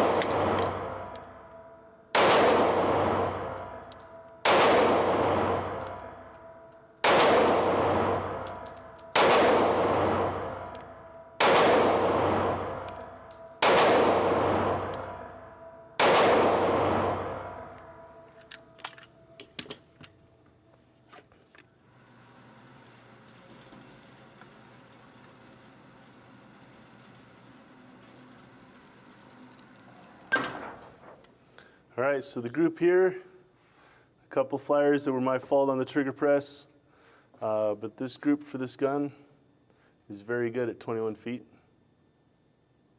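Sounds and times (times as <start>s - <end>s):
pistol shots with ringing echo: 0.0s - 18.3s.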